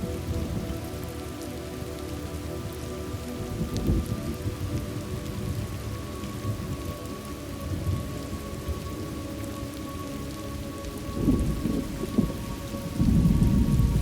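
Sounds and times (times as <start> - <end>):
steady rain falling: 0.0 - 14.0
thunder rumbling: 11.1 - 14.0.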